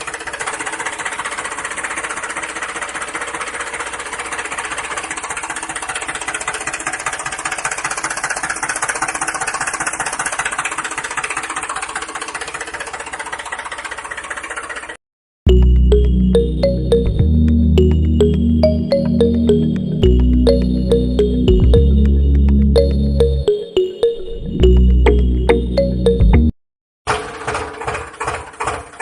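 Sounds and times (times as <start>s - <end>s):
small motor rattling: 0.0s - 15.0s
music: 15.5s - 26.5s.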